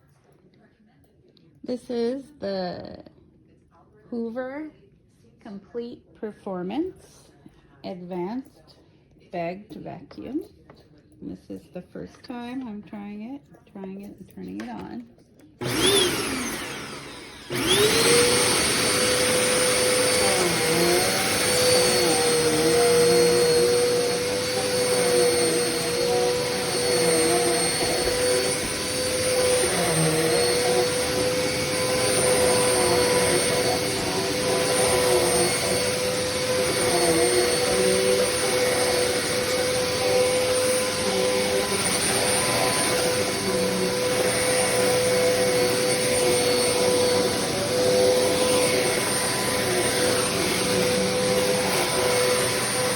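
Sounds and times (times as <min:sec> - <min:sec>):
vacuum cleaner motor whining: 0:15.6 - 0:52.9.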